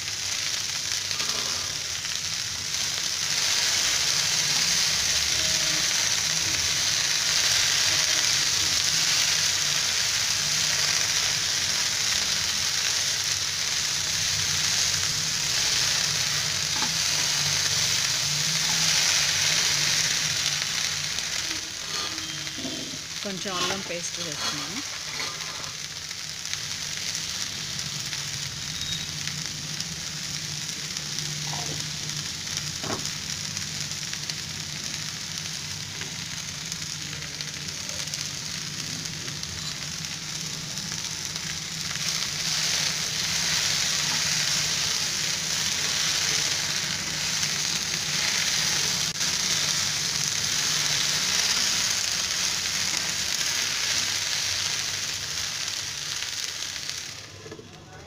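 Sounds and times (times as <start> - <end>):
okra sizzling in oil: 0.0 - 58.0.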